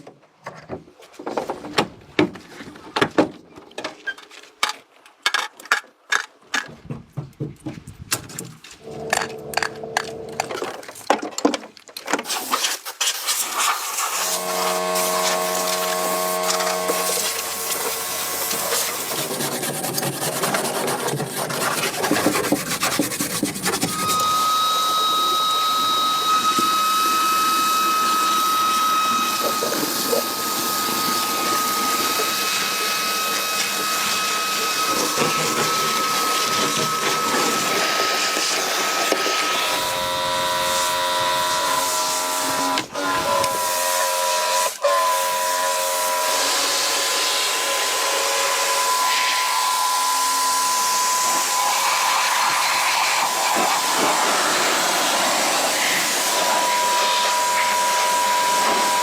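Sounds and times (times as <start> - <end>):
power tool rasping: 13.3 - 59.0
high whine: 14.1 - 19.4, 23.7 - 43.8.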